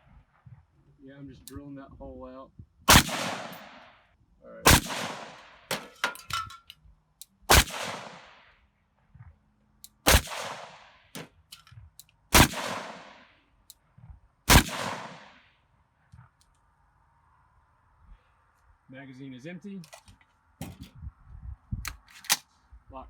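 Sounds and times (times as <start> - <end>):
gunshots echoing: 2.9 - 3.9, 4.6 - 6.3, 7.5 - 8.5, 10.1 - 11.3, 12.3 - 13.3, 14.5 - 15.5
light metallic clinks: 5.7 - 6.8.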